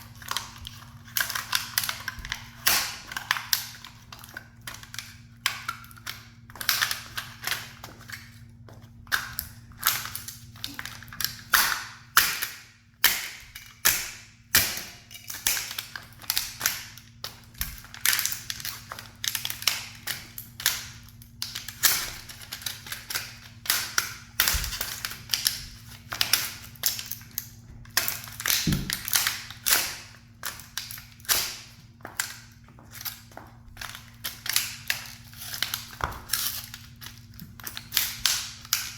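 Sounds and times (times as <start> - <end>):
toy car cracking and crunching: 0.1 - 8.3, 9.1 - 38.9.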